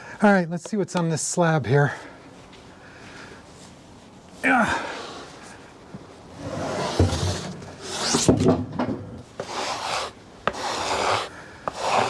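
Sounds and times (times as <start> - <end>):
rubbing strokes on wood: 6.4 - 8.3, 9.4 - 12.0.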